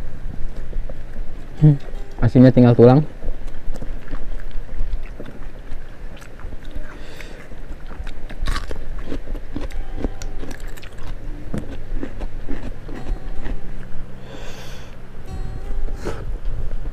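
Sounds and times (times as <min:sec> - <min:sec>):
crunching bites of cucumber: 0:03.4 - 0:09.8, 0:10.4 - 0:13.0.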